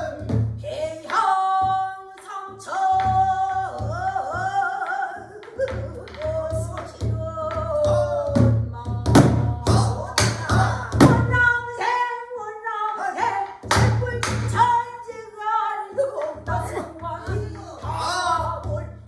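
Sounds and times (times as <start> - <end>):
barrel drum strikes: 9.1 - 11.4.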